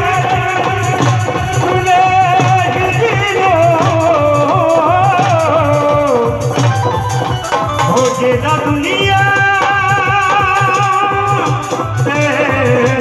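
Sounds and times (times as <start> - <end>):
steady low drum beat: 0.0 - 13.0
wavering melody line: 6.4 - 9.5.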